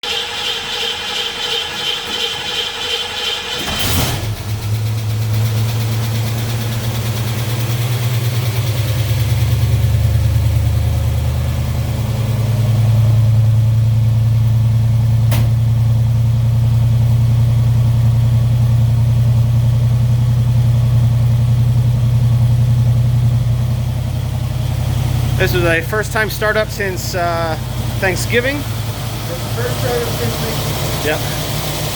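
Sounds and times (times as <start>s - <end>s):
car engine starting and idling: 0.0s - 31.9s.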